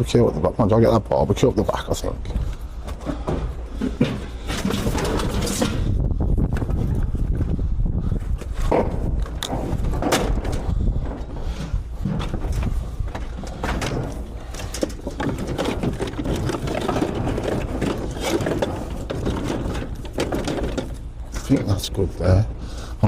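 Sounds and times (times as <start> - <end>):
low rumble: 0.0 - 21.4
metal barbecue clattering: 2.4 - 6.0, 8.7 - 22.0.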